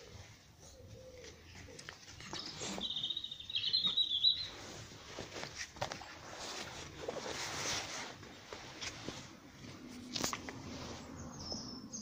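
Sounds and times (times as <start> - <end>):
songbird trilling: 2.4 - 4.6.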